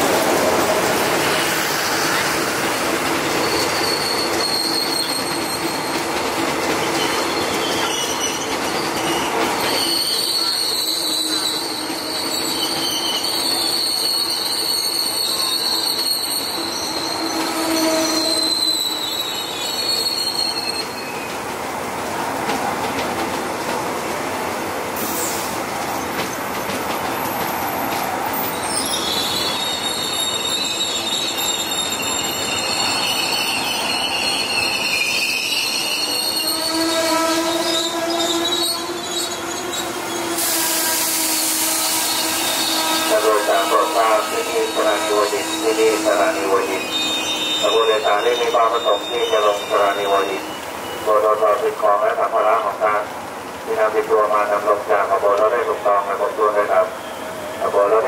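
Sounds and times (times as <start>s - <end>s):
train wheels rumbling on rail: 0.0s - 58.0s
high-pitched wheel squealing: 3.3s - 6.0s, 6.8s - 21.2s, 28.4s - 51.0s.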